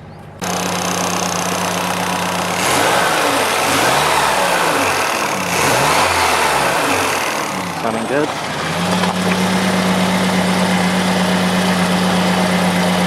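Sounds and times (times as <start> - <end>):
car engine running and revving: 0.4 - 13.0.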